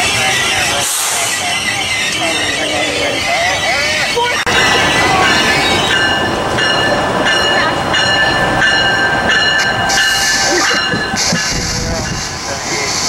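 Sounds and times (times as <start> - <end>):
train rumble: 0.0 - 13.0
high ringing tones: 2.2 - 11.5.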